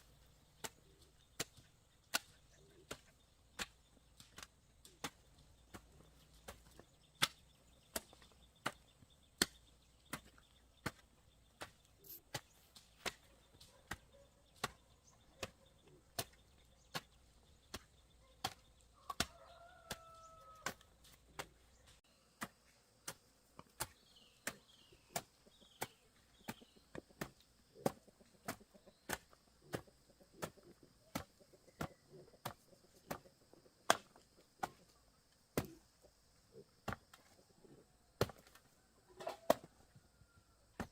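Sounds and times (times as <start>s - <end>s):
chopping strikes: 0.6s - 14.8s, 33.9s - 34.8s, 35.6s - 35.8s.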